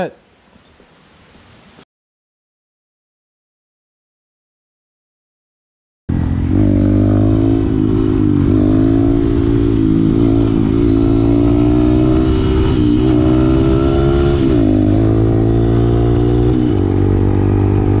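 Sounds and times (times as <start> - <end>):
motorcycle engine revving: 6.1 - 18.0.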